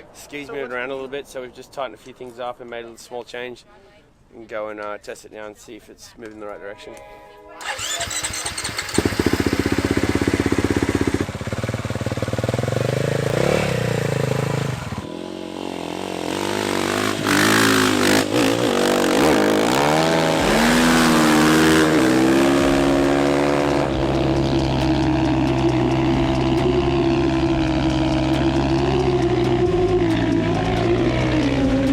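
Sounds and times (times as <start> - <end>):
dirt bike engine revving: 7.6 - 31.9.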